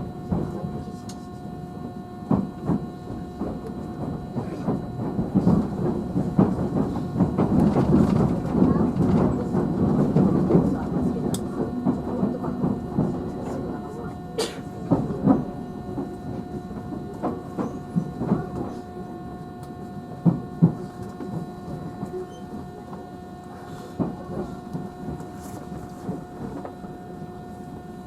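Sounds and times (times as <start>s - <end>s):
steady electric whine: 0.0s - 28.0s
train running rumble: 0.0s - 28.0s.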